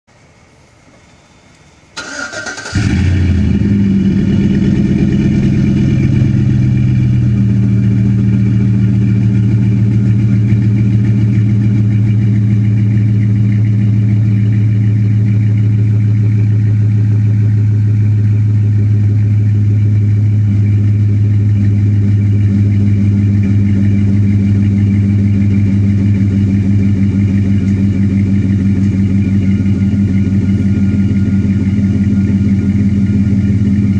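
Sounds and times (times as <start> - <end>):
truck engine idling: 2.0 - 33.9.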